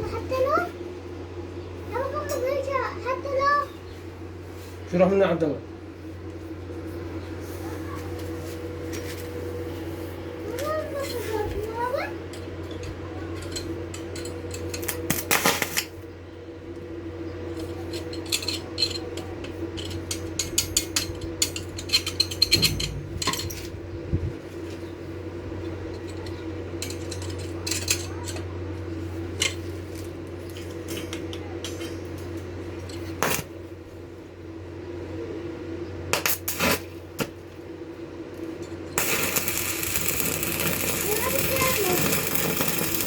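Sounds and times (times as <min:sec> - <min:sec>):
machine hum: 0:11.8 - 0:27.8, 0:37.0 - 0:43.0
metallic clinks and knocks: 0:17.6 - 0:23.7.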